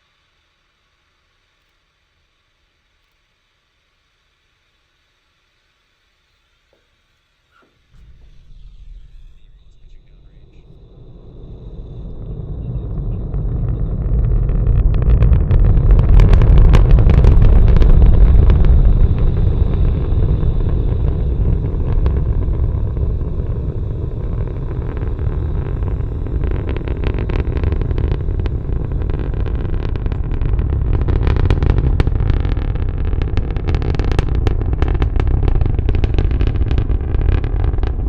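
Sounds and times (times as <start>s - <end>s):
deep crackling rocket roar: 7.9s - 38.0s.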